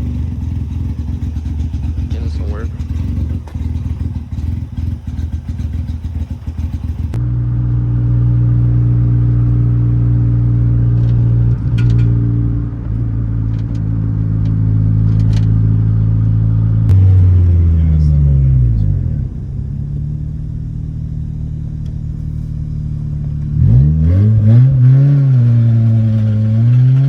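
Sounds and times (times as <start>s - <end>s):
car engine choppy idle: 0.0s - 7.2s, 17.5s - 23.6s
engine drone: 0.0s - 27.0s.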